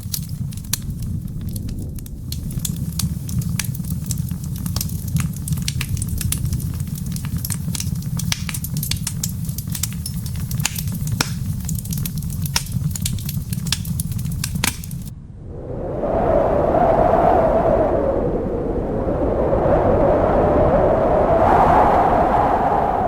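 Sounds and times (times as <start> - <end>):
wood fire crackling and popping: 0.0 - 15.1
soft wind rumble: 0.0 - 23.0.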